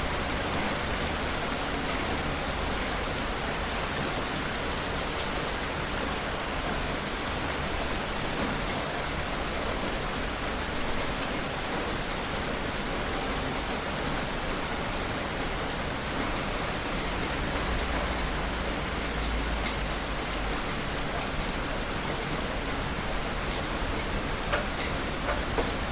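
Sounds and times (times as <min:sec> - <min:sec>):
heavy rain: 0:00.0 - 0:25.9
raindrops ticking: 0:17.6 - 0:25.9.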